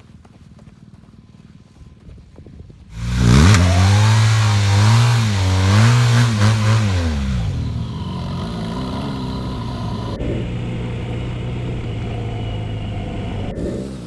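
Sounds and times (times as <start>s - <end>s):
motorcycle engine revving: 2.9s - 14.0s.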